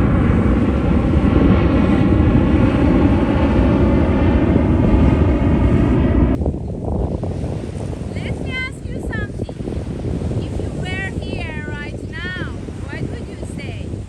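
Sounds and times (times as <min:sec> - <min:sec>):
loud engine drone: 0:00.0 - 0:06.4.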